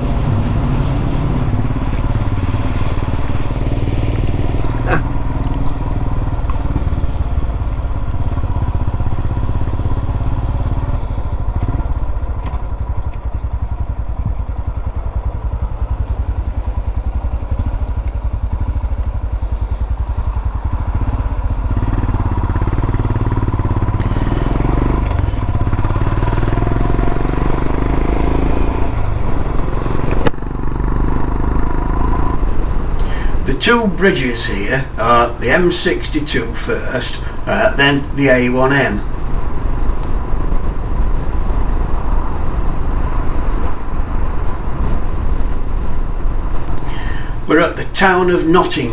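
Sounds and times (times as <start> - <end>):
motorcycle engine running: 0.0 - 32.4.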